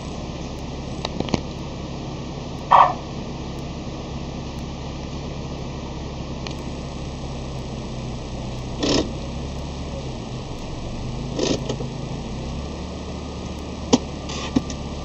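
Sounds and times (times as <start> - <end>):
car engine idling: 0.0 - 15.0
sharp clicks: 10.5 - 11.9.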